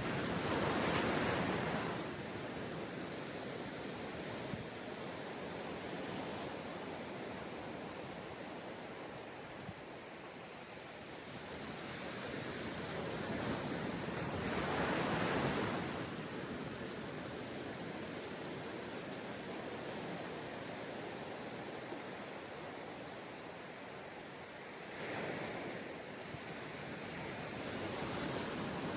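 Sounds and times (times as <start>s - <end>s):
sea waves washing onto beach: 11.5s - 28.9s.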